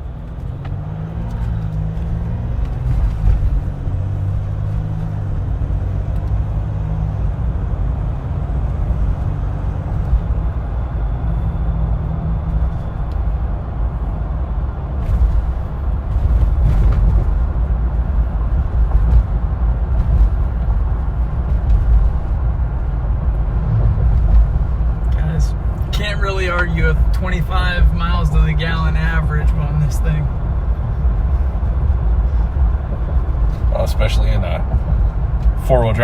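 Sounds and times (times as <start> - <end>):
car engine hum from cabin: 0.0 - 36.0
road rumble: 0.0 - 36.0.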